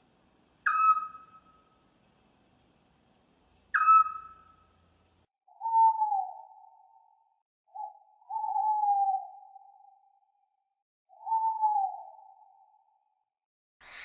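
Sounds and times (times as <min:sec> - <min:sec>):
owl hooting: 0:00.6 - 0:01.7, 0:03.7 - 0:04.7, 0:07.7 - 0:10.0, 0:11.1 - 0:12.6.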